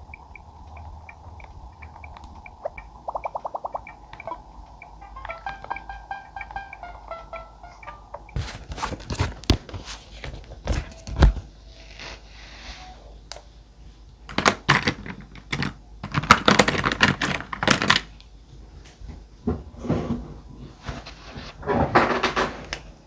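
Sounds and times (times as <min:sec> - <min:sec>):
paper rustle: 0:08.4 - 0:12.2.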